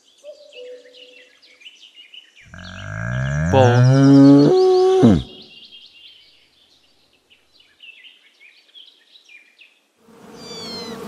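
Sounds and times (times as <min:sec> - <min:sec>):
loud low animal call: 0:02.5 - 0:05.5.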